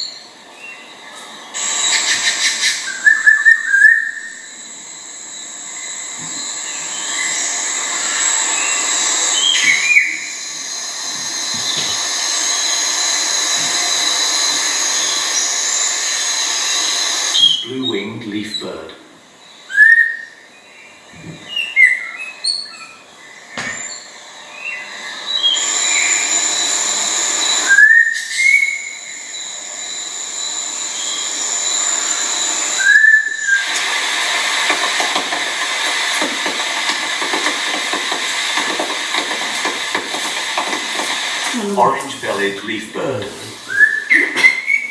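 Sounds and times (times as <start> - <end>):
background hiss: 0.0 - 44.9
insects droning: 0.0 - 44.9
steady high-pitched whine: 0.0 - 44.9
bird short rising whistles: 27.4 - 29.2, 32.7 - 33.7, 43.7 - 44.9.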